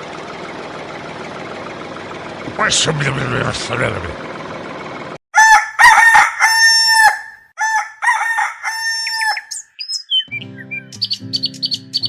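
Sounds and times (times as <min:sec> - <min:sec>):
rooster crowing: 0:05.3 - 0:09.6
birds chirping: 0:08.0 - 0:12.0
guitar music: 0:10.2 - 0:12.0.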